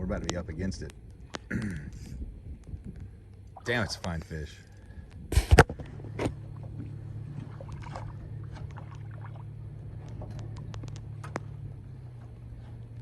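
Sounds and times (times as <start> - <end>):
boat motor humming: 0.0 - 13.0
light clicks and knocks: 10.0 - 13.0.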